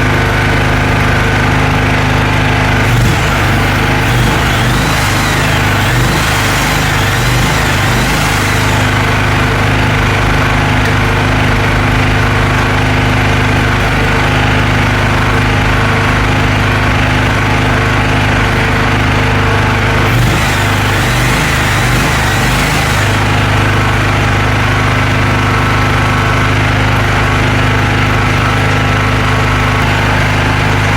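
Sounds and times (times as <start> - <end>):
engine humming: 0.0 - 30.9.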